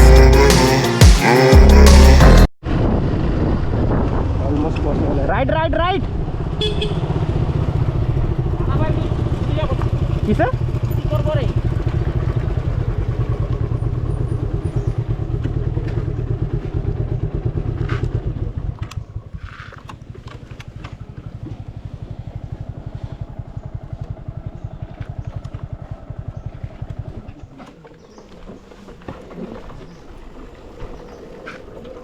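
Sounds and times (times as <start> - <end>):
motorcycle engine idling: 6.7 - 28.2.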